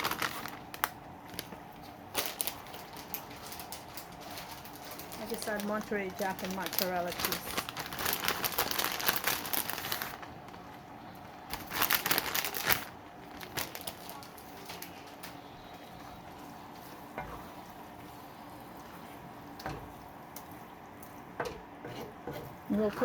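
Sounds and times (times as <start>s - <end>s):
plastic bag crinkling: 0.0s - 17.8s
sauce sizzling in a pan: 15.7s - 21.4s.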